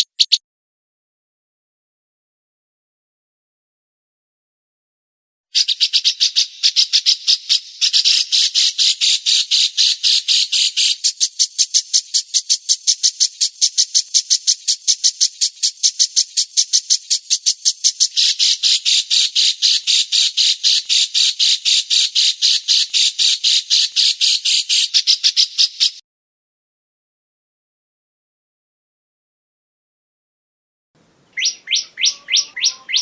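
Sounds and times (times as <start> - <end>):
songbird harsh rapid call: 0.0 - 0.4, 5.6 - 26.0, 31.3 - 33.0.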